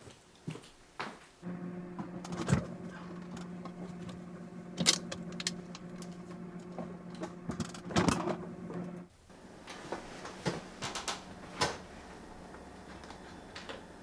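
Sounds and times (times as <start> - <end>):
low mechanical hum: 1.4 - 14.0.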